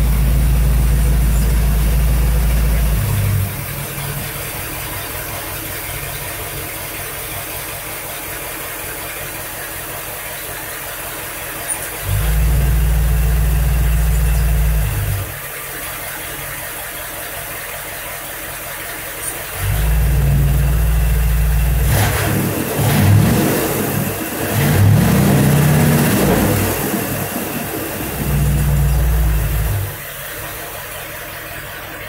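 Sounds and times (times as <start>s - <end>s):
car engine revving: 11.6s - 16.5s, 19.2s - 32.0s.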